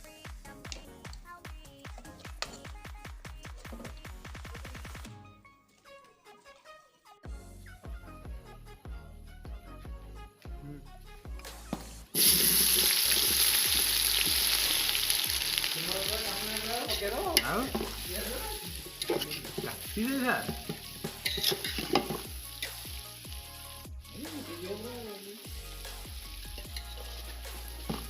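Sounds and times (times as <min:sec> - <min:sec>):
background music with steady beat: 0:00.0 - 0:28.0
food sizzling in hot oil: 0:12.1 - 0:28.0.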